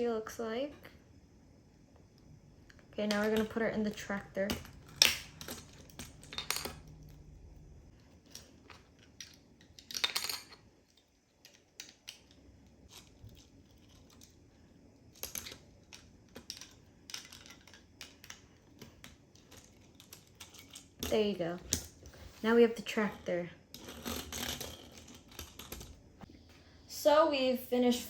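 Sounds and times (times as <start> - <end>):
plastic bricks clicking: 15.2 - 21.9.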